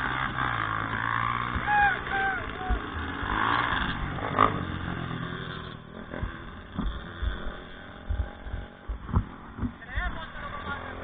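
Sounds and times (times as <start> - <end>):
motorcycle engine running: 0.0 - 11.0
low thumps and knocks: 6.0 - 10.4.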